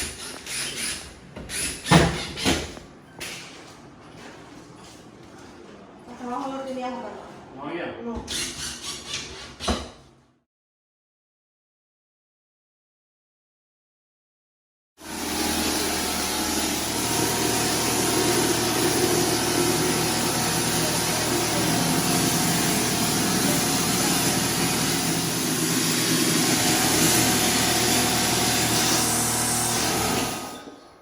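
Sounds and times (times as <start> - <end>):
machine motor with rushing hiss: 15.0 - 30.9.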